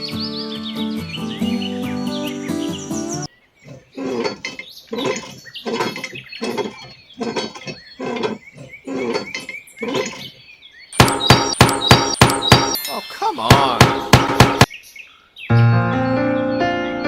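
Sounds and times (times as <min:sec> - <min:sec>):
animal crying: 0:03.6 - 0:10.3
sharp ringing strikes: 0:11.0 - 0:14.7.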